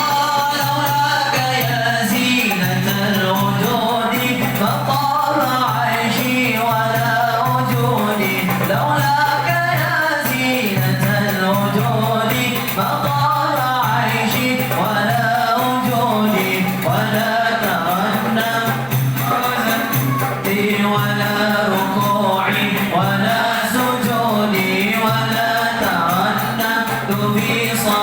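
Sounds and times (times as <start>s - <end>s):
group singing devotional song: 0.0s - 28.0s
hand percussion beat: 0.0s - 28.0s.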